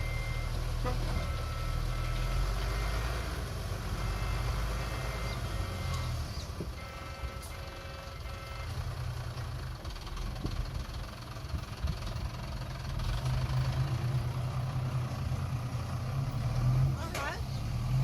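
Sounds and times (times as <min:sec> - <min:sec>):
reversing beeper: 0:00.0 - 0:03.1, 0:03.9 - 0:06.2, 0:06.8 - 0:08.8
diesel engine running: 0:00.0 - 0:18.0.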